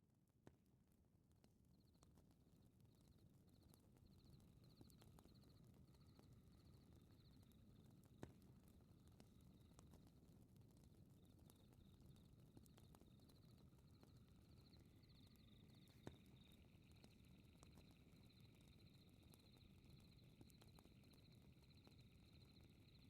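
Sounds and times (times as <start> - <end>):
crickets chirping: 14.4 - 23.0.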